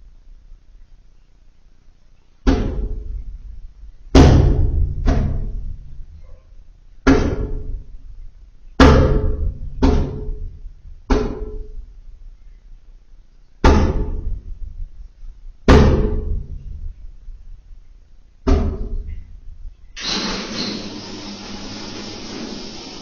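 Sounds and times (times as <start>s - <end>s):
gas boiler banging: 4.1s - 5.9s, 20.0s - 23.0s.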